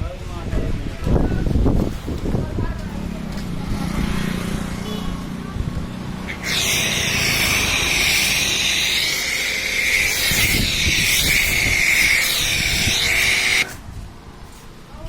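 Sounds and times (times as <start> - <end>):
high-pressure spray hissing: 6.3 - 13.8.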